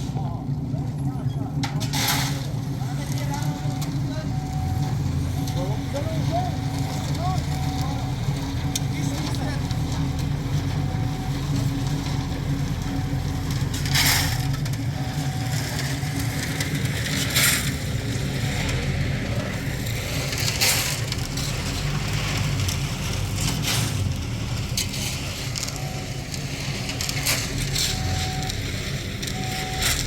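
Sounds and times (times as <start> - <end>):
engine humming: 0.0 - 30.0.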